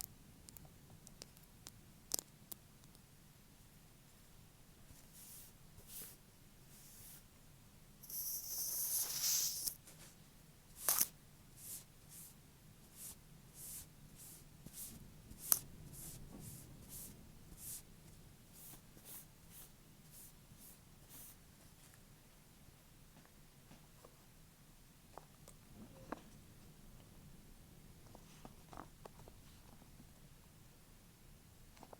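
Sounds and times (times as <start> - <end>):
nails scratching: 8.0 - 9.8, 10.8 - 11.2.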